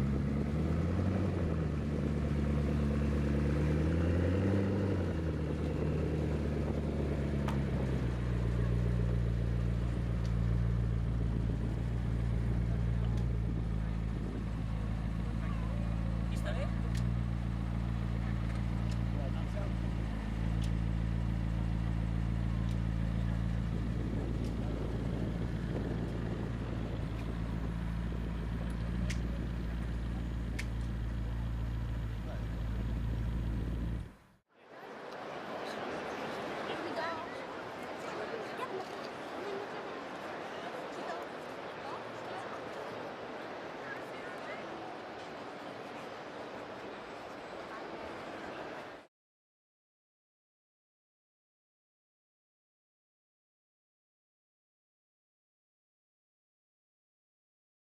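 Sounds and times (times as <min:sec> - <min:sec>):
car engine idling: 0:05.0 - 0:34.4.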